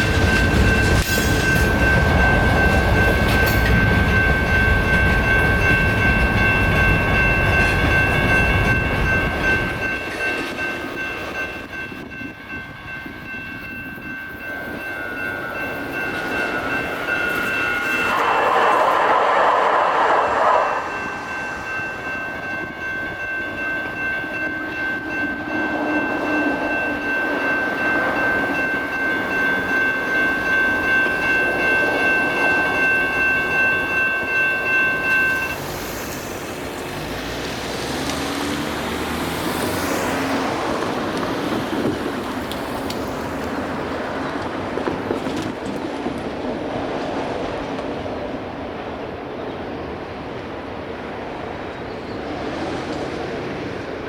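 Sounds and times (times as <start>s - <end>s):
electronic crossing bells ringing: 0.0s - 18.8s, 20.5s - 37.5s
train rumbling past: 0.0s - 54.0s.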